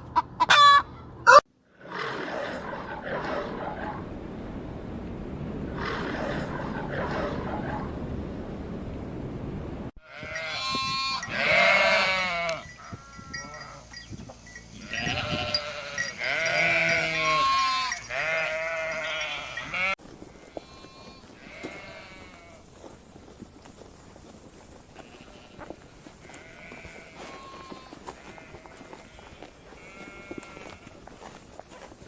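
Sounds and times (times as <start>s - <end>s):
sheep bleating: 10.0s - 13.8s, 14.8s - 22.6s, 26.2s - 30.9s.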